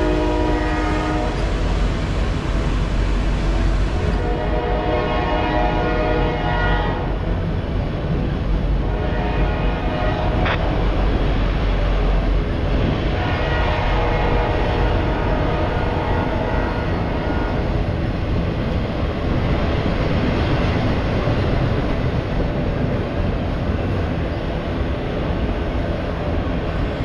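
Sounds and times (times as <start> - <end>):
freight train wheels rumbling on rails: 0.0 - 27.0.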